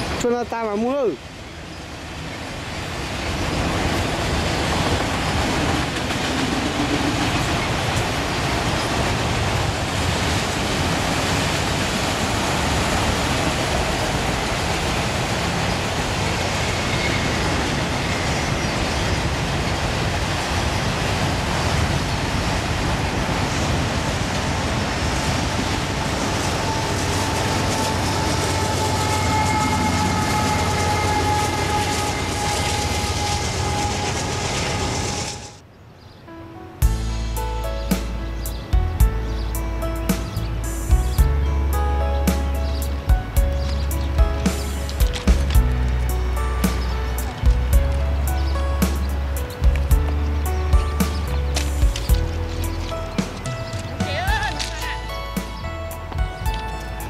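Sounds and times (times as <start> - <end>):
train rumbling past: 0.0 - 35.7, 36.3 - 57.0.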